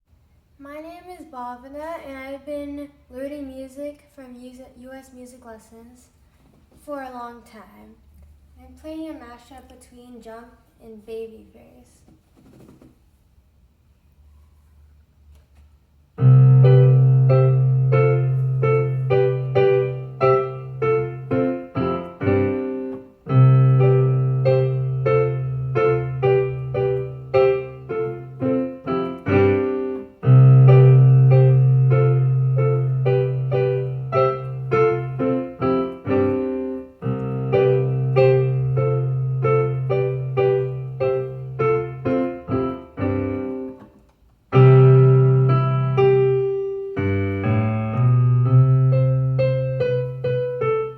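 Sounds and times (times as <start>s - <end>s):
keyboard playing short chords: 16.2s - 43.9s.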